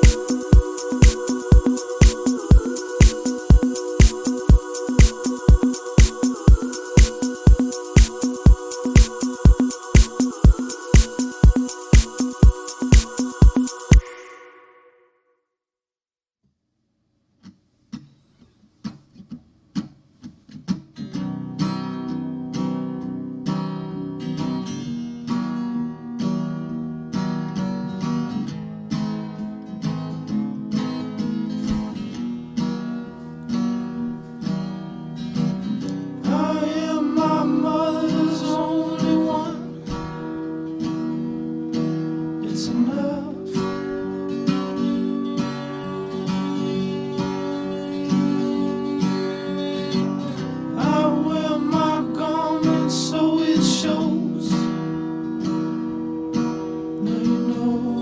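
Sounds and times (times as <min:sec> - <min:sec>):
acoustic guitar strumming: 0:00.0 - 0:14.9, 0:26.5 - 0:53.0
person singing: 0:00.0 - 0:14.9, 0:36.3 - 0:40.1, 0:42.4 - 0:43.7, 0:50.8 - 0:54.6.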